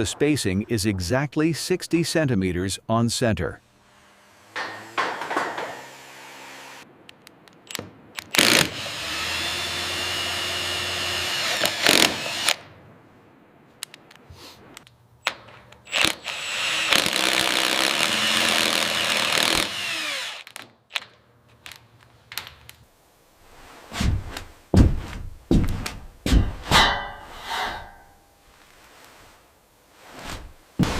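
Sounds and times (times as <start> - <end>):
power drill running: 8.3 - 12.6, 15.9 - 20.6
handling knocks and clicks: 20.5 - 22.9.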